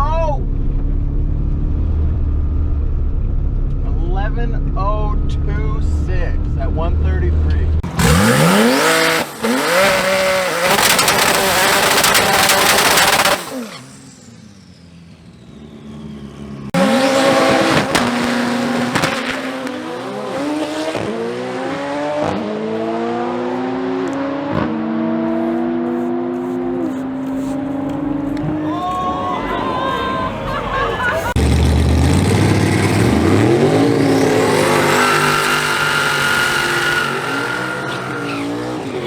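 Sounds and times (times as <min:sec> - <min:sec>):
car engine accelerating hard: 0:06.4 - 0:28.7, 0:30.2 - 0:39.0.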